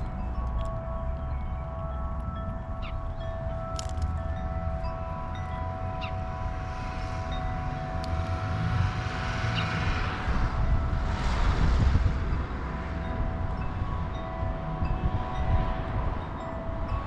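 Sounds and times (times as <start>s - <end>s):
aircraft rumble overhead: 0.0s - 17.0s
wind chimes ringing: 0.0s - 17.0s.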